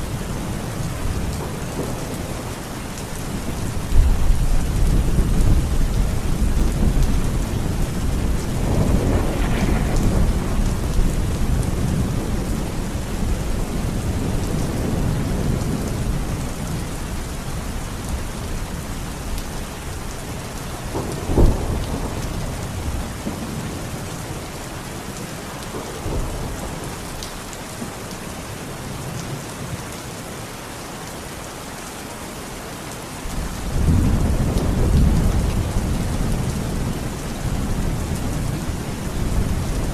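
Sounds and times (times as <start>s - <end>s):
rolling thunder rumble: 0.0s - 18.2s, 20.8s - 24.2s, 33.3s - 39.9s
heavy rain falling: 0.0s - 39.9s
sharp thunderclap: 3.9s - 13.4s, 20.9s - 23.4s.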